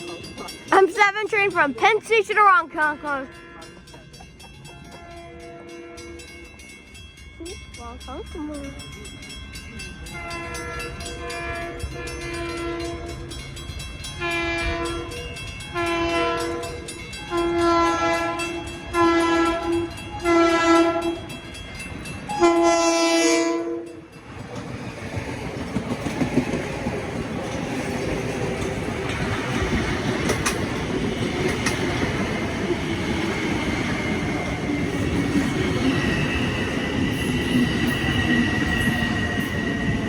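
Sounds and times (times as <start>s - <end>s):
train cars rolling: 0.0s - 40.0s
train horn blasts: 3.0s - 3.8s, 4.9s - 6.4s, 10.2s - 13.3s, 14.2s - 21.4s, 22.3s - 24.0s.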